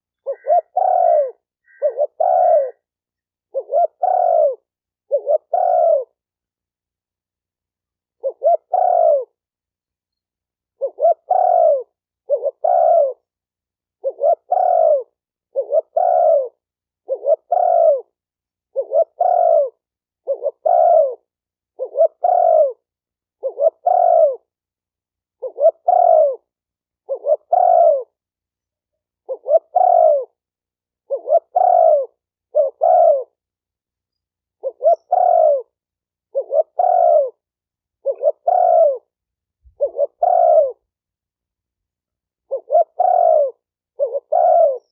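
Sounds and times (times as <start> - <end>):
dove cooing: 0.0 - 2.9, 3.5 - 6.2, 8.1 - 9.4, 10.7 - 13.3, 14.0 - 24.5, 25.3 - 28.2, 29.2 - 30.4, 31.0 - 33.4, 34.6 - 41.0, 42.4 - 44.9.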